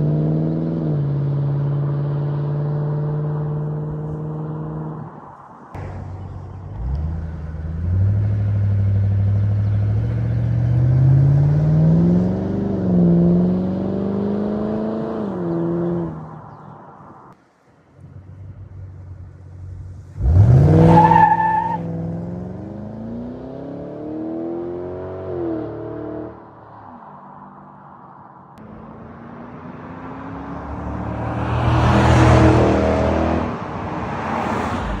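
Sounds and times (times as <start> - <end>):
car engine revving: 5.8 - 16.2, 19.7 - 26.4, 28.6 - 35.0.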